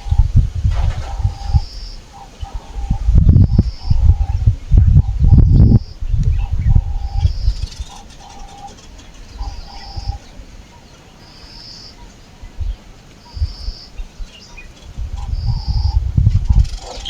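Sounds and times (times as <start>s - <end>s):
low rumbling thumps: 0.0s - 8.0s, 15.0s - 16.8s.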